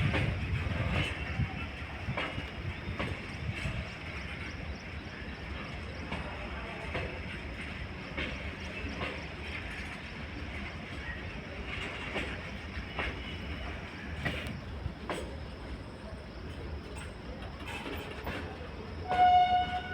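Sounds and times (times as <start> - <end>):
freight wagon wheels rumbling on rail: 0.0 - 19.9
wheel clicks over rail joints: 16.9 - 19.9.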